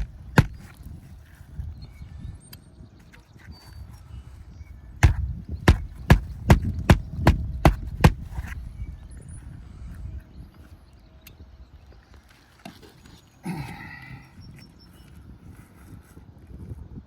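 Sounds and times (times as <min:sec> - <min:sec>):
hammer driving nails into shingle: 0:00.0 - 0:00.8, 0:05.0 - 0:08.4.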